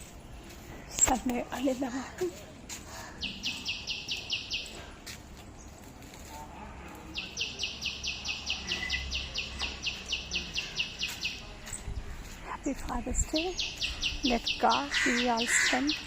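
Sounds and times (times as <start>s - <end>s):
bird rapid high chirps: 3.2s - 4.8s, 7.2s - 11.8s, 13.2s - 16.0s.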